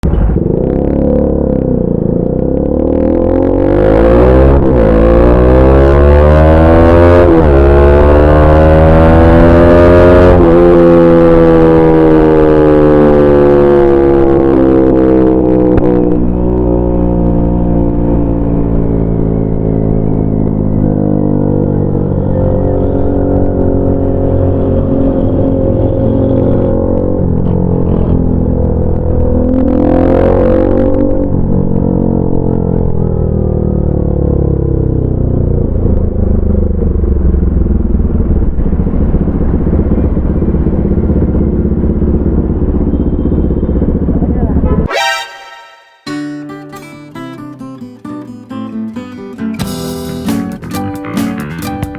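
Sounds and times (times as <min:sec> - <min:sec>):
motorcycle engine running: 0:30.9 - 0:44.9.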